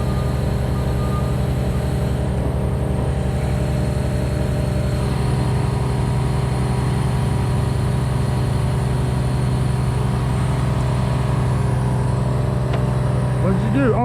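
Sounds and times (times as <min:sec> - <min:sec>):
large engine humming steadily: 0:00.0 - 0:14.0.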